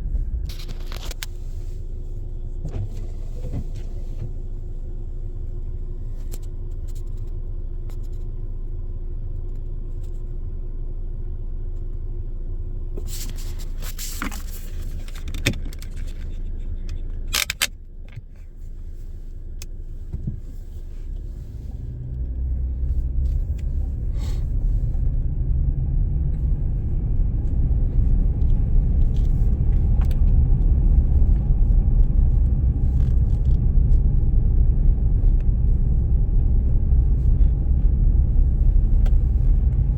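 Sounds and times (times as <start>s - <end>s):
low rumble of engine and tyres: 0.0s - 39.9s
sharp clicks and rattles: 14.2s - 18.4s.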